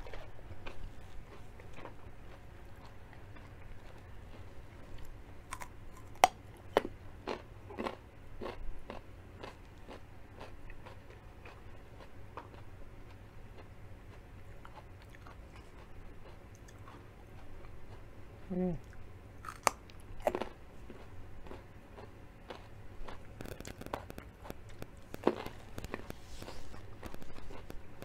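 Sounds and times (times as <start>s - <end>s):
carrot crunching while chewed: 0.0s - 28.0s.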